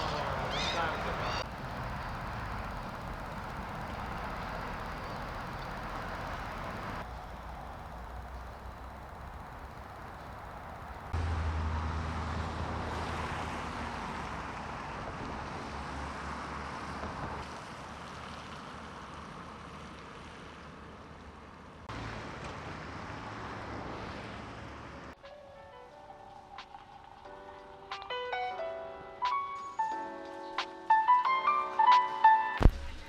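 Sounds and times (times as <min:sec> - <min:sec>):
vehicle engine rumble: 0:00.0 - 0:25.2.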